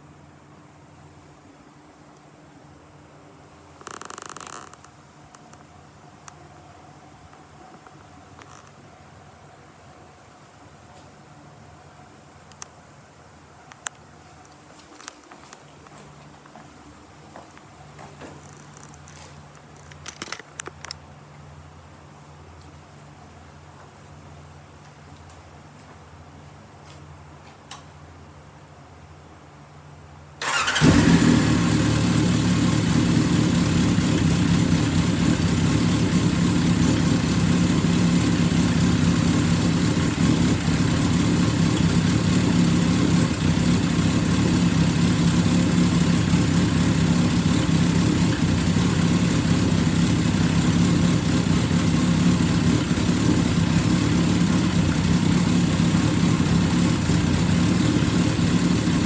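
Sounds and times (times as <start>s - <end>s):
motorcycle engine starting and idling: 30.4s - 59.0s.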